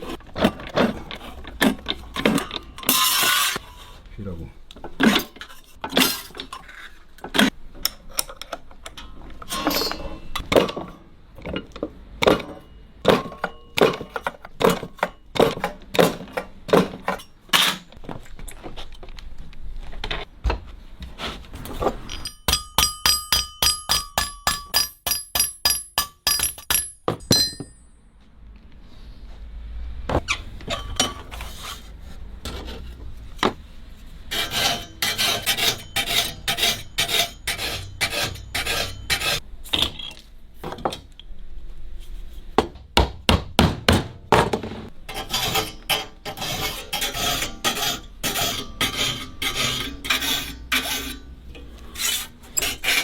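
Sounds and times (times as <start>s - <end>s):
hammer striking metal: 22.1s - 28.2s.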